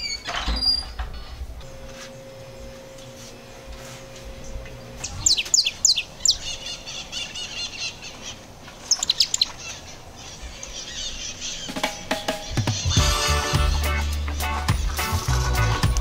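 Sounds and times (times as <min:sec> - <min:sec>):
songbird chirping and warbling: 0:00.0 - 0:01.5, 0:04.3 - 0:15.3
faint steady hum: 0:00.0 - 0:11.8.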